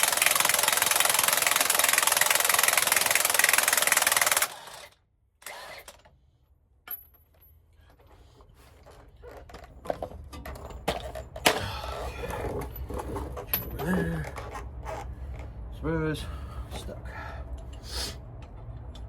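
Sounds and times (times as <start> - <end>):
pneumatic air tool hammering: 0.0 - 6.1.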